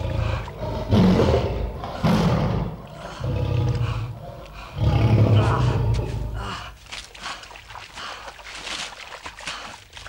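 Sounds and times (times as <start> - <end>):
tiger growling: 0.0 - 6.4.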